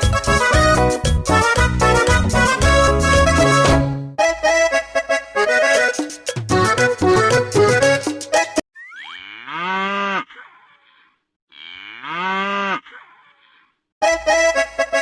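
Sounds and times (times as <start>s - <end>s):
children's accordion music: 0.0s - 8.6s, 14.0s - 15.0s
cow mooing: 9.2s - 13.6s.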